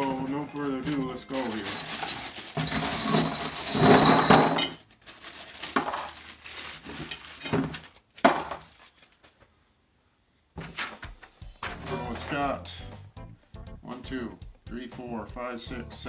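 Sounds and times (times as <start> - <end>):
metal parts clattering: 0.8 - 8.8.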